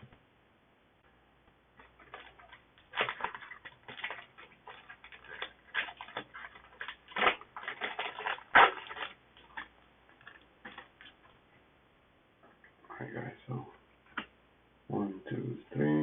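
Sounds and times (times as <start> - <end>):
card pack crinkling and clicking: 1.8 - 11.4.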